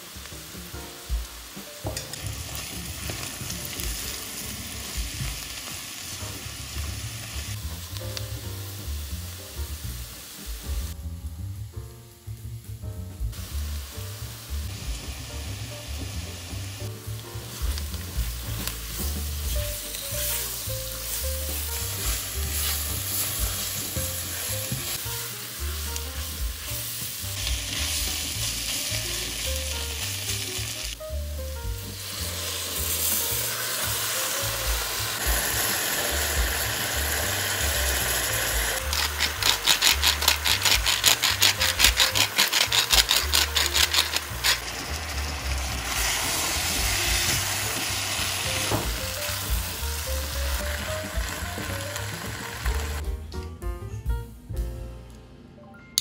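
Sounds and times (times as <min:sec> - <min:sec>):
vegetables sizzling in a pot: 0:00.0 - 0:53.0
spatula stirring: 0:38.8 - 0:44.9.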